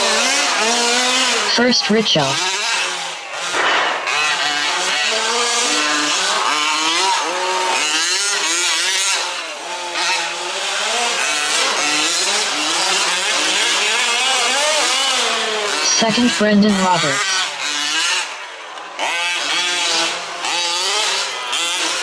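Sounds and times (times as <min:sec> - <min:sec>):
small engines revving: 0:00.0 - 0:22.0.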